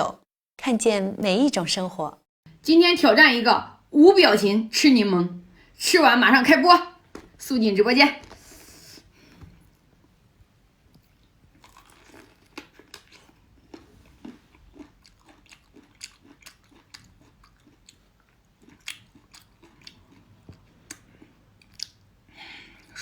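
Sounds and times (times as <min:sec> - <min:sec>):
person chewing lemon: 0:11.0 - 0:23.0.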